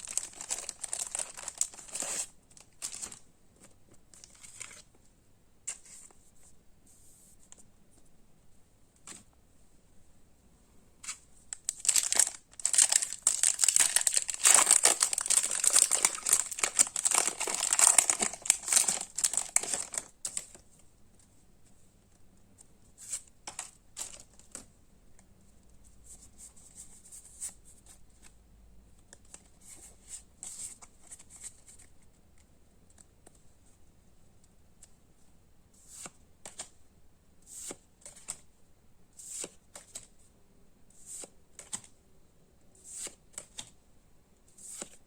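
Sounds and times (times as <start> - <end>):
foil wrapper tearing and crinkling: 0.0 - 3.2, 11.6 - 20.2.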